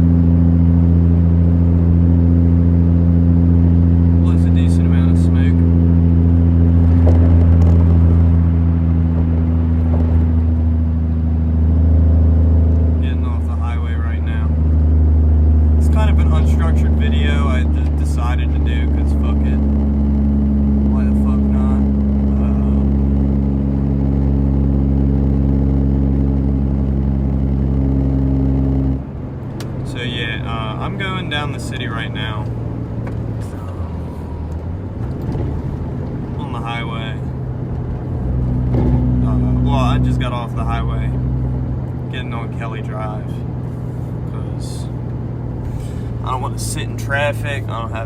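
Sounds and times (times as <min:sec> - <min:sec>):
diesel engine drone inside cab: 0:00.0 - 0:48.0.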